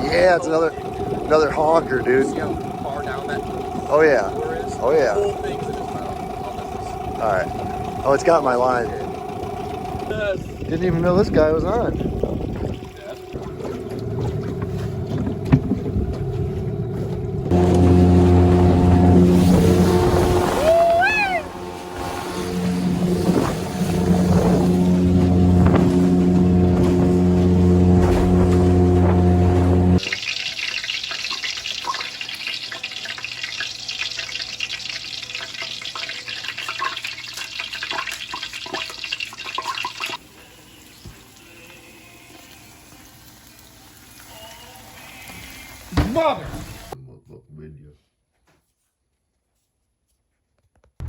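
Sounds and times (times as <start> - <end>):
outboard motor running: 0.0 - 30.1
water splashing and trickling: 0.0 - 47.0.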